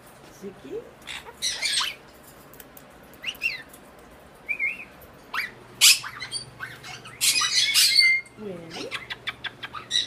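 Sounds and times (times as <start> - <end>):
parrot harsh squawk: 1.1 - 2.0, 5.3 - 8.3, 8.9 - 10.0
parrot whistles and chirps: 4.4 - 8.3.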